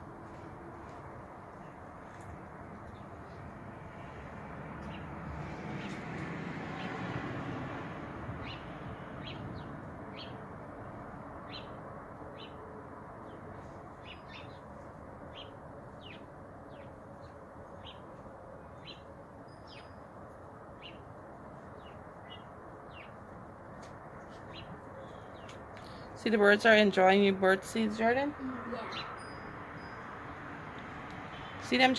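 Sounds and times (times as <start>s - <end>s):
small birds chirping: 8.4s - 10.4s, 11.4s - 12.6s, 13.2s - 20.0s, 20.7s - 23.3s, 24.2s - 26.2s, 28.0s - 30.0s.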